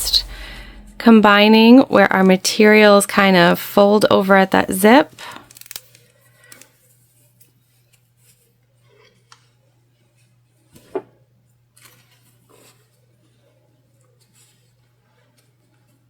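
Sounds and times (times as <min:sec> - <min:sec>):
steady low hum: 0:00.0 - 0:02.7.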